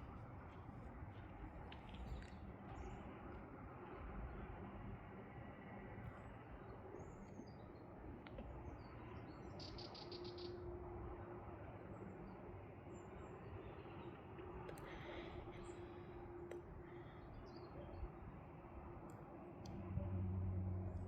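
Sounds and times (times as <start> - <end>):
faint bird chirps: 8.6 - 10.8
bird trill: 9.5 - 10.6.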